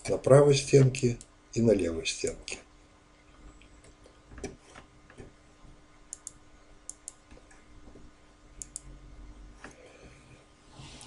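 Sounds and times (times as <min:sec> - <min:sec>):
faint steady hum: 0:00.0 - 0:11.0
computer mouse clicks: 0:06.1 - 0:07.6, 0:08.6 - 0:08.9.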